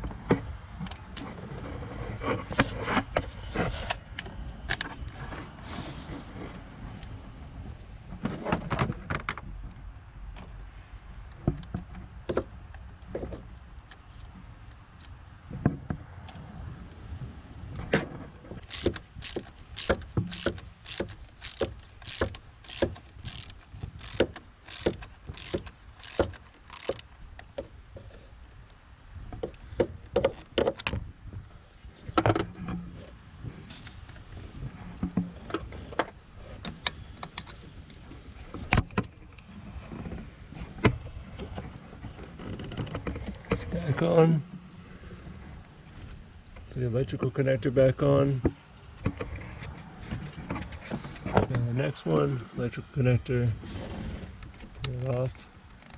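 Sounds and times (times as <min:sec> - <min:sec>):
tools knocking on engine: 0:18.7 - 0:27.0
hand ratchet clicking: 0:18.7 - 0:27.1.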